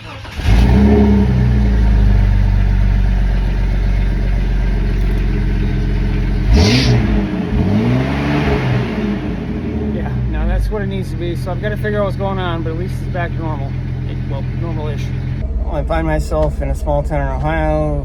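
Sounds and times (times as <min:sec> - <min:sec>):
car engine idling and revving: 0:00.0 - 0:18.0.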